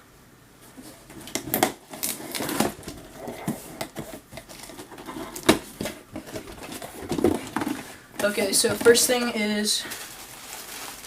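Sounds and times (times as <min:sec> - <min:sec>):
knife cutting cardboard box: 0:01.2 - 0:07.8.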